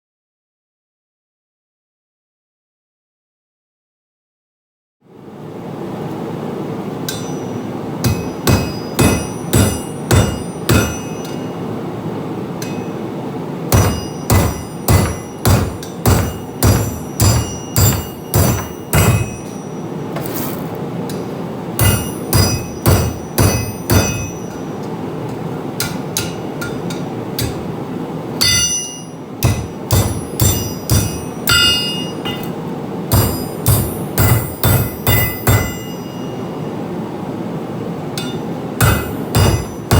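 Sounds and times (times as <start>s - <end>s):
hammer striking steel on anvil: 7.0s - 11.7s, 12.6s - 13.1s, 13.7s - 27.8s, 28.4s - 36.8s, 38.2s - 39.9s.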